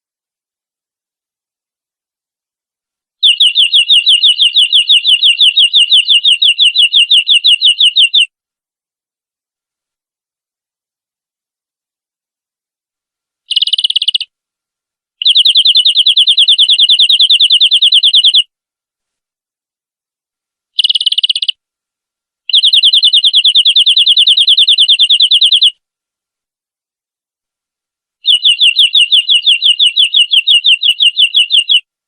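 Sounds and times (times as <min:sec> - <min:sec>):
canary song trill: 0:03.2 - 0:08.3, 0:13.4 - 0:14.4, 0:15.2 - 0:18.5, 0:20.7 - 0:21.6, 0:22.4 - 0:25.8, 0:28.2 - 0:32.0.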